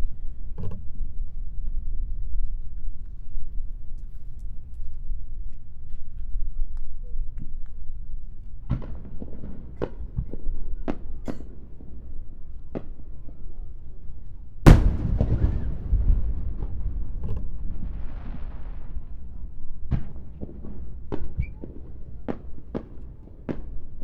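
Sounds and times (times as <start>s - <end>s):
fireworks sharp cracks: 14.7s - 24.0s
loud fireworks boom rumbling: 14.7s - 24.0s.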